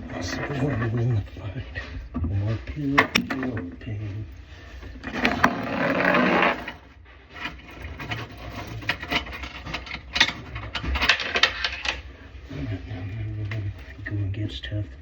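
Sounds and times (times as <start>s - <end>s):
tools and metal fittings scraping: 4.5s - 12.4s.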